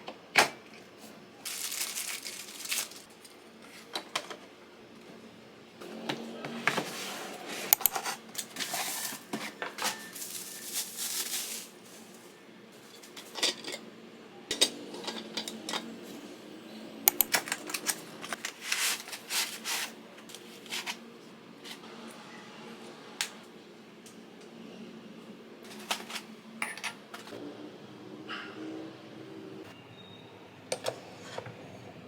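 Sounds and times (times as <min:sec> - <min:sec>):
rustling scraping sounds: 0:01.0 - 0:03.9, 0:06.6 - 0:13.6, 0:17.8 - 0:21.0, 0:25.7 - 0:26.3.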